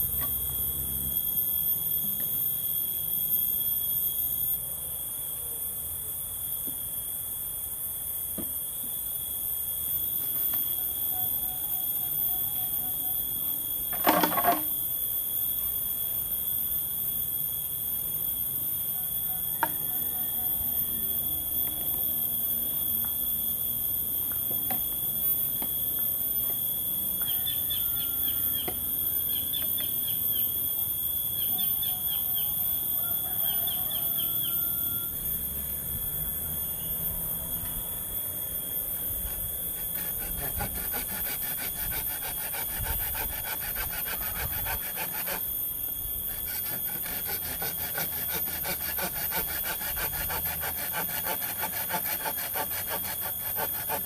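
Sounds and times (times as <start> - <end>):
high-pitched hum: 0.0 - 54.0
hand saw cutting wood: 13.9 - 14.7, 39.7 - 54.0.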